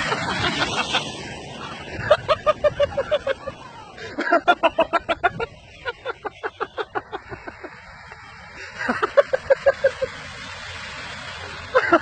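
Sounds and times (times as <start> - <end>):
person laughing hard: 0.0 - 7.7, 8.6 - 10.1, 11.7 - 12.0.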